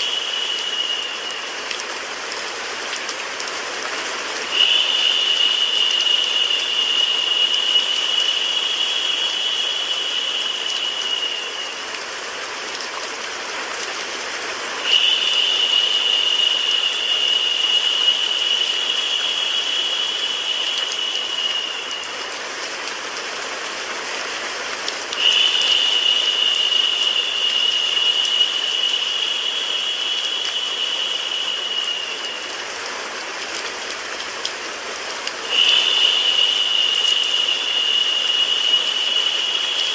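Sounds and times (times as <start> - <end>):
higher brighter hiss: 0.0 - 1.7, 4.4 - 12.4, 14.8 - 22.2, 25.2 - 33.0, 35.4 - 39.9
rain mixed with white noise: 0.0 - 39.9.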